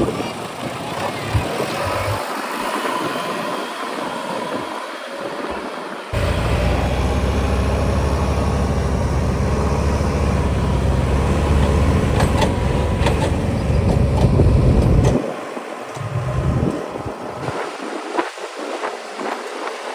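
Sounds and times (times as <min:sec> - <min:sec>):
heavy diesel engine running: 0:06.2 - 0:15.2, 0:16.0 - 0:17.5.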